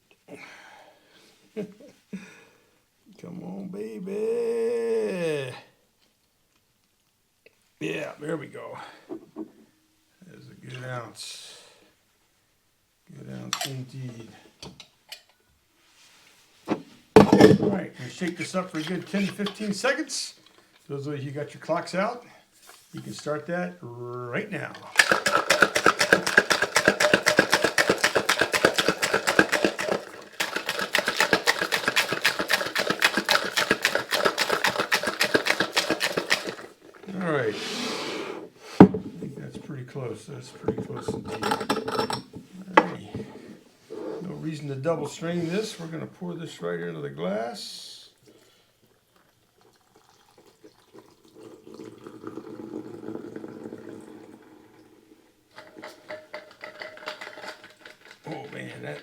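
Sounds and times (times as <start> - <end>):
ice rattling in cocktail shaker: 17.2 - 20.1, 24.6 - 37.1, 55.5 - 59.0
liquid splashing into glass: 24.8 - 36.7, 49.6 - 54.4.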